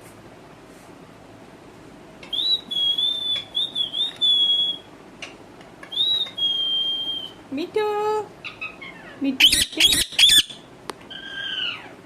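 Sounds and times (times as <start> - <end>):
parrot whistling: 2.2 - 4.9, 5.9 - 7.4, 8.4 - 12.0.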